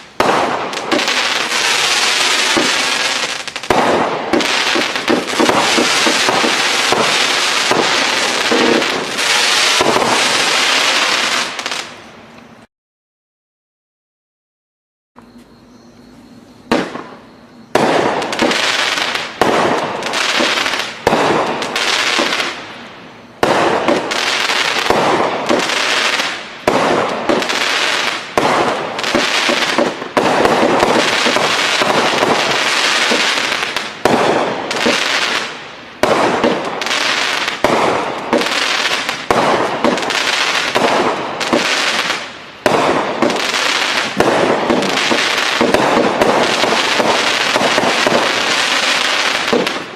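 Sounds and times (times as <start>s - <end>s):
firework cake shots: 0.0s - 10.4s, 23.4s - 49.9s.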